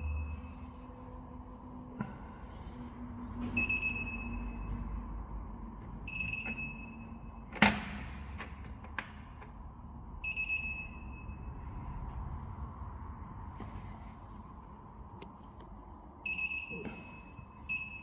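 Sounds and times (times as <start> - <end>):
machine electronic beeps: 3.6 - 4.9, 16.3 - 18.0.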